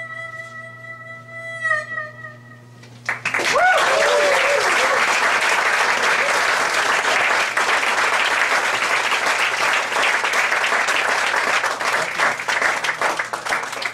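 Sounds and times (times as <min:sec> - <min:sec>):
audience applauding: 0:03.0 - 0:13.9.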